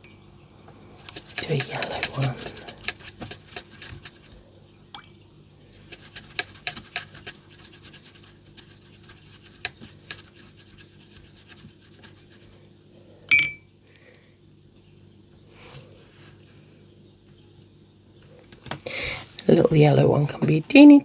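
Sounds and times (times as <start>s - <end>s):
faint steady hum: 0.0s - 21.0s
brush scratching on paper: 0.9s - 4.5s, 5.7s - 12.7s.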